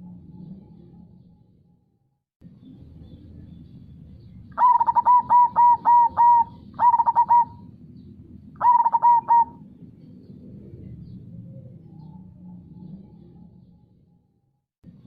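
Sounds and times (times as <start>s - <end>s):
faint low rush: 2.4s - 14.3s
dove cooing: 4.6s - 7.7s, 8.6s - 9.7s.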